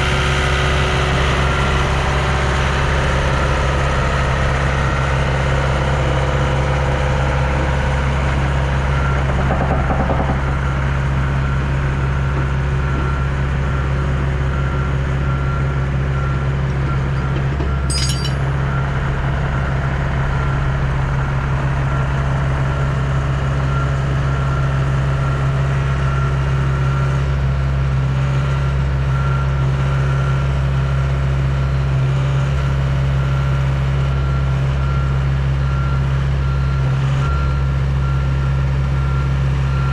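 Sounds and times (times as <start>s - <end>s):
diesel engine idling: 0.0s - 28.2s
metallic clink: 17.9s - 18.5s.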